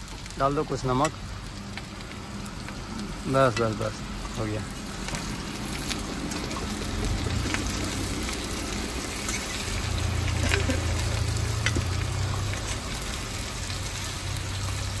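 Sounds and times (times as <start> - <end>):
food sizzling in oil: 0.0 - 15.0
sharp stirring clicks: 5.9 - 12.9.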